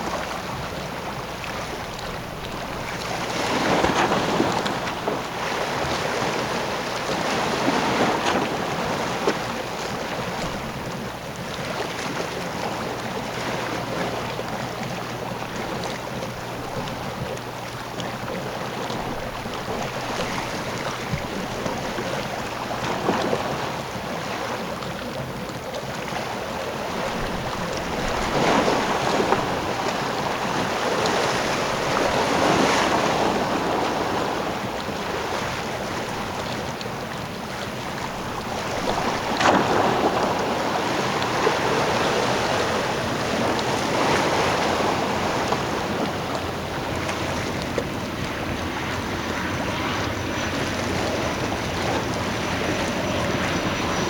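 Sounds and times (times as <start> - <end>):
hydrofoil ferry running: 0.0 - 54.0
wind buffeting microphone: 26.6 - 54.0.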